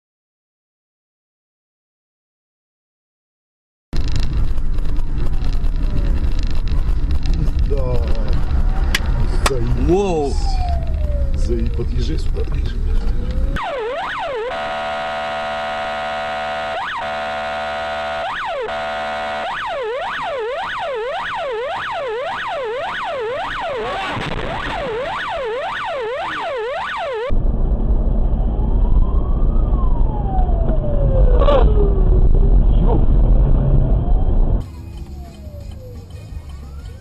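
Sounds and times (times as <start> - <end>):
road rumble: 4.0 - 37.0
emergency vehicle siren: 7.6 - 37.0
steady horn-like tone: 13.6 - 19.8.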